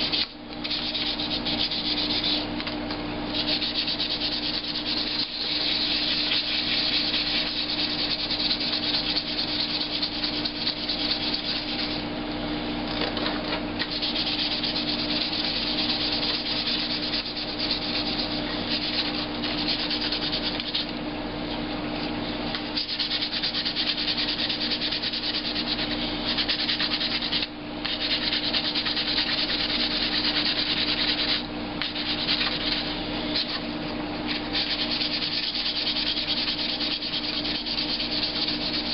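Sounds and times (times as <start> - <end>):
sandpaper sanding plastic: 0.0 - 2.5, 3.4 - 12.0, 13.9 - 20.9, 22.7 - 33.6, 34.5 - 38.9.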